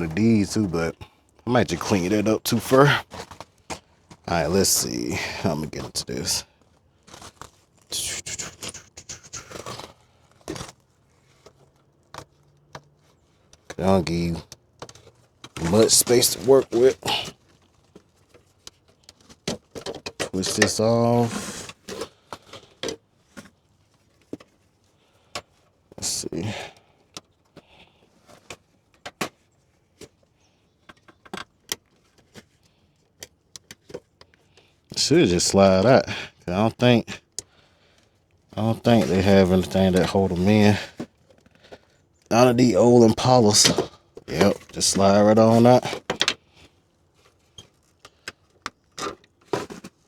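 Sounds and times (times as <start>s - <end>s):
hands scraping and rustling: 2.9s - 25.0s, 38.5s - 46.3s.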